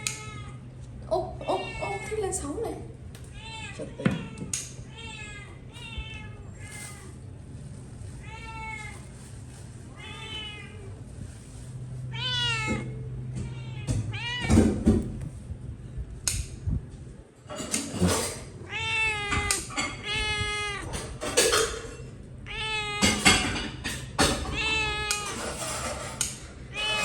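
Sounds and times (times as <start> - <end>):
cats meowing: 0.0 - 2.4, 3.2 - 11.1, 11.8 - 15.2, 17.7 - 27.0
cats scuffling: 5.6 - 15.4.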